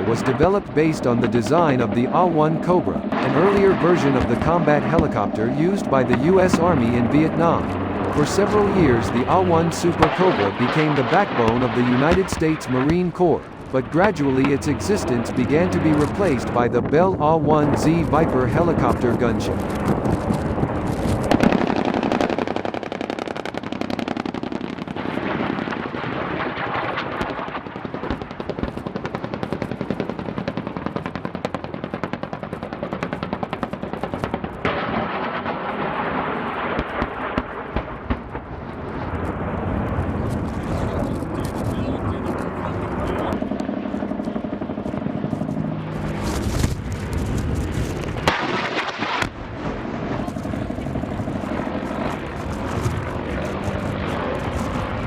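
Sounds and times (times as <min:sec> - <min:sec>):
sharp loud bursts: 0:00.0 - 0:19.7
helicopter rotor and engines: 0:00.0 - 0:21.3, 0:39.3 - 0:55.0.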